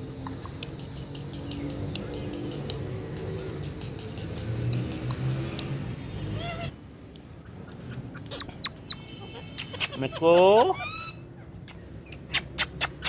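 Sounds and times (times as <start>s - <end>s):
parrot wavering call: 8.3s - 11.2s.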